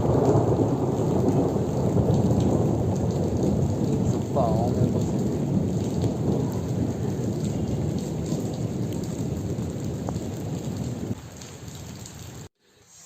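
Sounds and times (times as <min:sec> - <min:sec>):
thunder rumbling: 0:00.0 - 0:12.5
heavy rain: 0:00.0 - 0:12.6.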